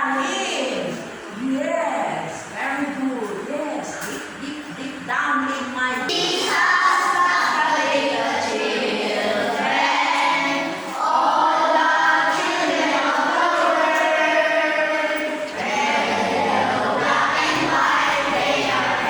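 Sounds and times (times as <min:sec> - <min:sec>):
group of voices singing: 0:06.5 - 0:19.0.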